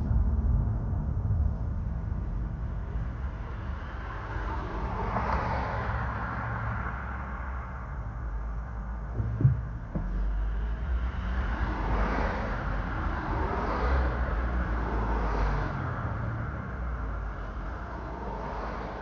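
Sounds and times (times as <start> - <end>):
road traffic rumble: 0.0 - 19.0
short thump: 9.1 - 10.4.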